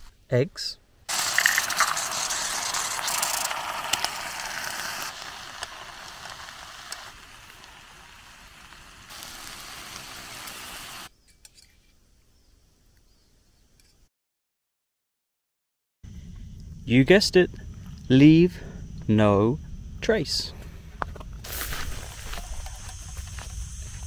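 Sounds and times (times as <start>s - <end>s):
eggs sizzling in hot oil: 1.1s - 11.1s.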